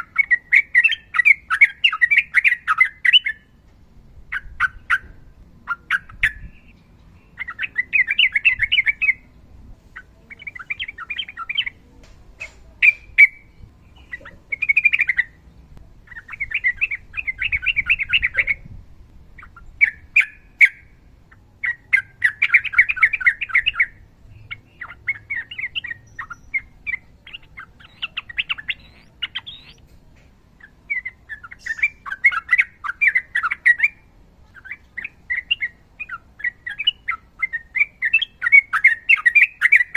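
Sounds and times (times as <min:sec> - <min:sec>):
bulbul chattering song: 0:00.0 - 0:03.6, 0:10.0 - 0:18.7, 0:19.4 - 0:39.9
sharp bird calls: 0:00.0 - 0:03.6, 0:04.3 - 0:09.3, 0:10.0 - 0:18.7, 0:19.4 - 0:30.0, 0:30.6 - 0:39.9.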